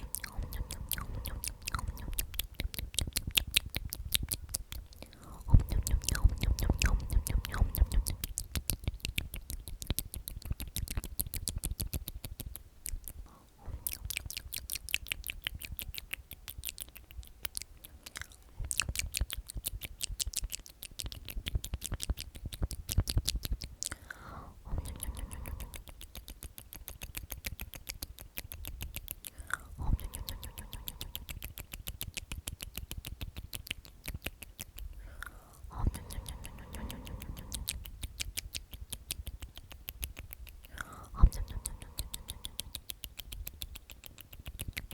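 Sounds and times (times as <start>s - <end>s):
person whispering: 0.0s - 9.8s, 13.0s - 14.4s, 23.8s - 26.3s, 29.2s - 31.6s, 34.2s - 38.2s, 39.3s - 44.9s
wet mouth clicks and lip smacks: 0.0s - 44.9s.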